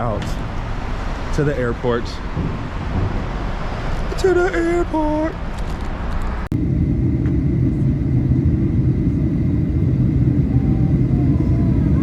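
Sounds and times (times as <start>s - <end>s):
low vehicle rumble: 6.5s - 12.0s.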